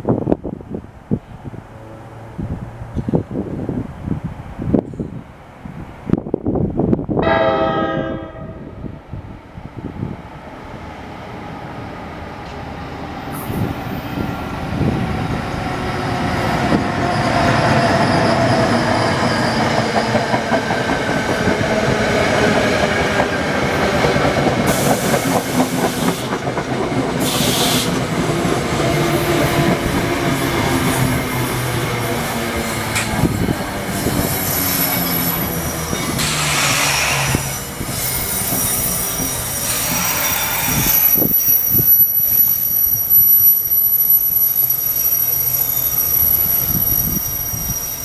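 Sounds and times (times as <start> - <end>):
train air horn blast: 7.2 - 8.9.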